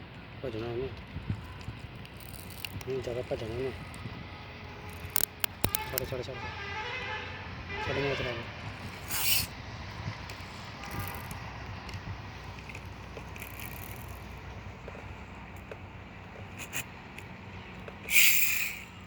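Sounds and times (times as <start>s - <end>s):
small clicks: 1.0s - 3.1s, 4.9s - 6.1s, 10.3s - 14.3s
toy motorcycle motor humming: 2.0s - 4.1s, 4.7s - 6.1s, 8.8s - 9.5s, 10.3s - 11.4s, 12.5s - 14.4s, 18.0s - 19.0s.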